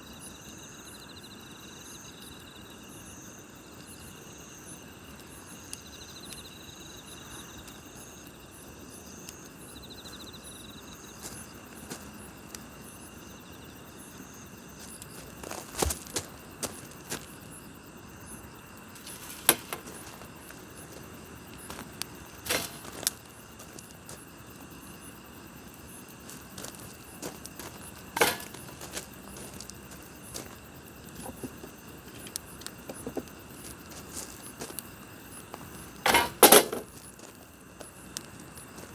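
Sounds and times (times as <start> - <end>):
night insects chirping: 0.0 - 38.9
campfire popping and crackling: 18.8 - 38.9.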